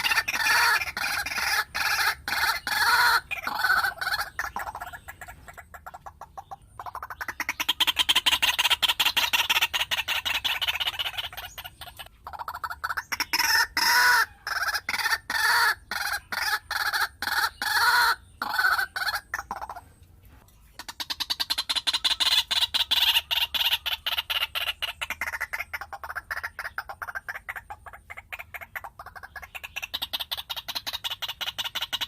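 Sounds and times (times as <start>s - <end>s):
chicken crowing: 0.0s - 4.4s, 13.5s - 19.3s
chicken clucking: 0.0s - 32.0s.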